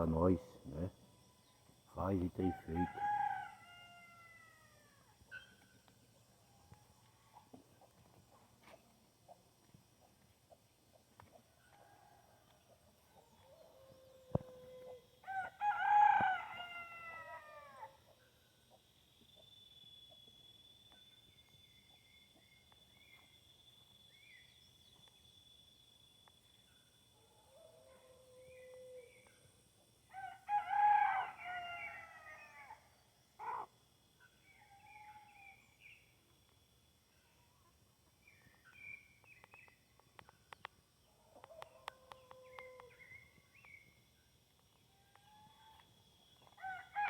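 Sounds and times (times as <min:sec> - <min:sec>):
rooster crowing: 0:02.4 - 0:05.1, 0:13.6 - 0:18.0, 0:30.1 - 0:32.8, 0:46.6 - 0:47.0.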